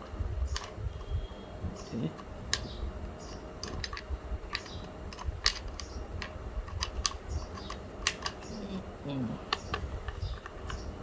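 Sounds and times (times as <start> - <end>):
small metal clicks and taps: 2.1 - 8.6, 9.5 - 10.9.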